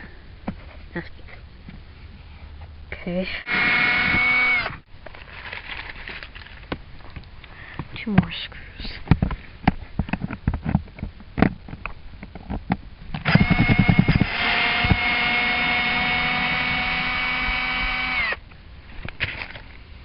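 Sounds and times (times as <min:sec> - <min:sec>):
power drill motor whining: 0:03.4 - 0:04.8, 0:13.2 - 0:18.4
drill bit knocks and clicks: 0:13.2 - 0:18.4.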